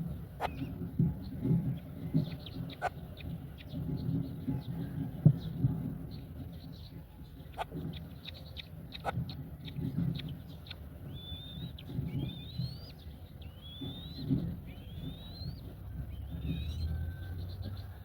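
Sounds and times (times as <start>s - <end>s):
bird whistled calls: 11.1s - 18.0s.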